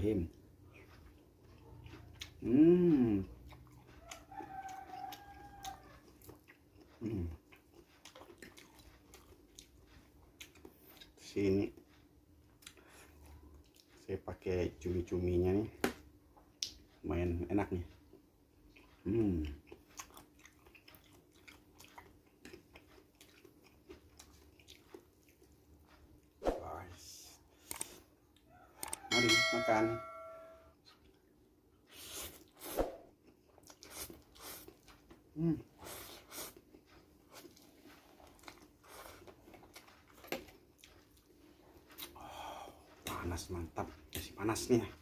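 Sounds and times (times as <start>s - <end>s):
person chewing noodles: 0.1s - 15.2s, 16.4s - 26.4s, 27.4s - 29.1s, 30.7s - 45.0s.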